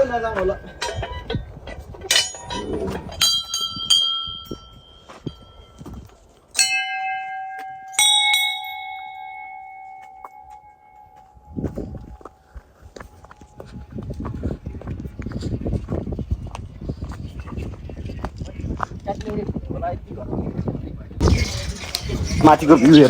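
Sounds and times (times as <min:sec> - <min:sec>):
deep metal bell struck: 0:02.1 - 0:05.8, 0:06.6 - 0:12.0
high metal bell ringing: 0:02.1 - 0:06.0, 0:06.6 - 0:12.2.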